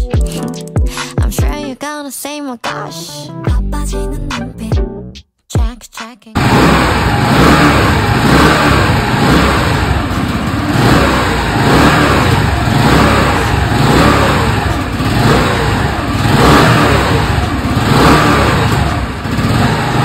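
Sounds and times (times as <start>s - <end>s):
scooter engine revving: 6.4s - 20.0s.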